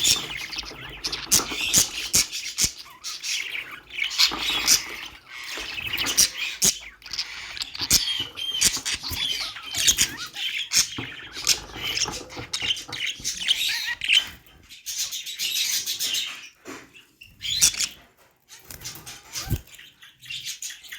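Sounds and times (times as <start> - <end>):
budgerigars chirping and chattering: 0.0 - 20.9.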